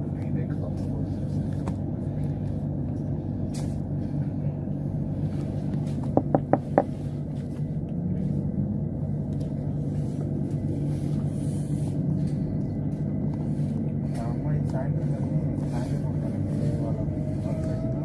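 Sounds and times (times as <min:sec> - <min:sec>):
train rumbling: 0:00.0 - 0:18.0
sharp knocks: 0:06.2 - 0:06.9.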